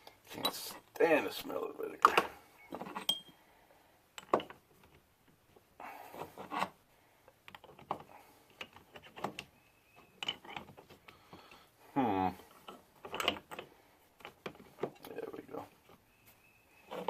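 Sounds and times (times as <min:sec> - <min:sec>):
objects clicking and knocking: 0:04.2 - 0:05.0, 0:10.2 - 0:11.6.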